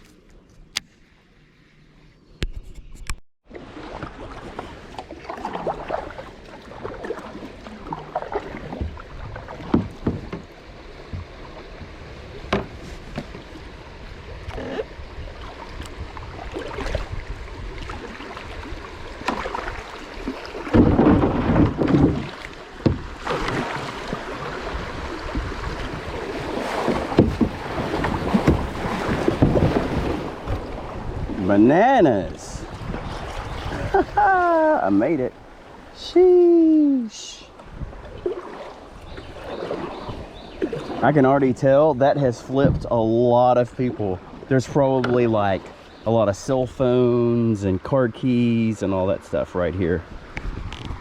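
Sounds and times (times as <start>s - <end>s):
paddle strokes splashing water: 3.5s - 46.5s
knocks on kayak: 9.6s - 10.5s, 12.5s - 13.4s, 20.6s - 23.6s, 26.8s - 30.6s
wind on microphone: 11.1s - 36.0s, 37.6s - 41.1s, 50.0s - 51.0s.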